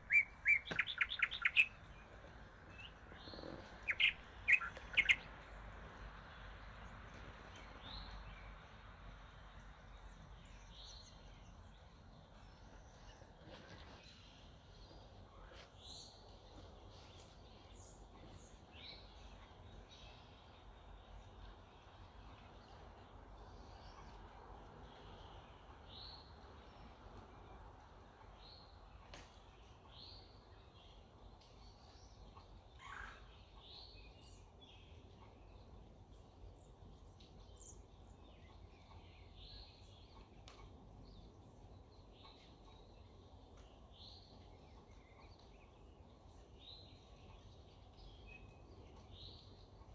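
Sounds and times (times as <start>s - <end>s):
birds chirping and calling: 0.0s - 5.4s
birds chirping: 0.0s - 27.6s.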